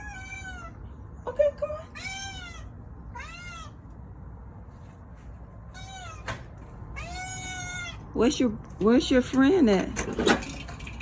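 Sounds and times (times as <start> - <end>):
cat meowing: 0.0 - 0.8, 1.9 - 3.8, 5.7 - 8.1.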